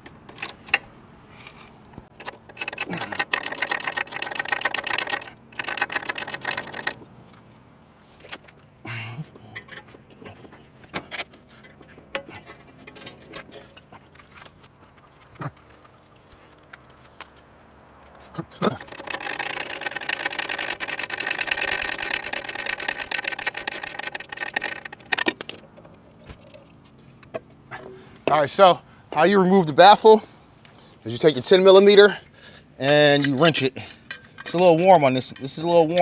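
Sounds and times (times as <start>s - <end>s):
dense metallic rattle: 0.0s - 7.1s, 18.6s - 30.2s, 31.1s - 36.0s
metal hand tools clinking: 0.3s - 7.0s, 9.5s - 14.5s, 18.6s - 28.4s, 31.1s - 36.0s.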